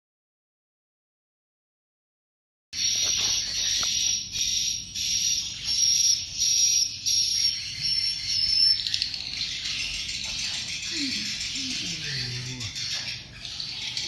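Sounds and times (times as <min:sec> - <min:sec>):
swiftlets chirping and twittering: 0:02.8 - 0:14.0.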